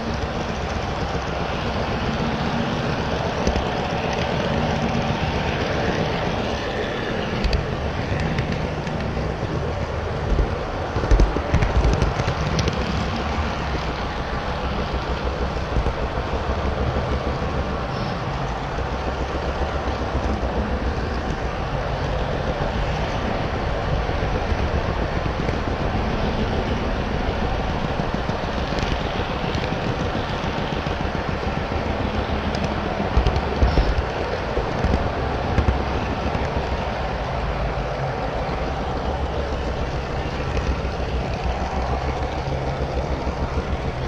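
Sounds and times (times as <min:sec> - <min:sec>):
model train wheels rumbling: 0:00.0 - 0:44.0.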